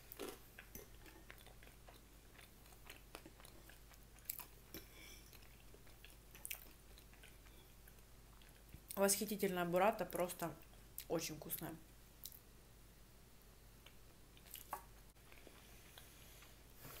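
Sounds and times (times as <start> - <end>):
faint chewing: 0.0 - 9.0, 12.2 - 12.4, 13.8 - 17.0.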